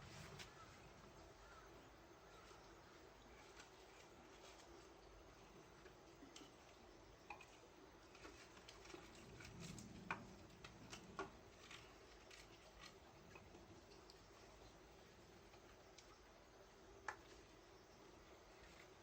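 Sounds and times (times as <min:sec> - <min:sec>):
faint clicks and light taps: 0:05.8 - 0:14.8, 0:17.0 - 0:17.5.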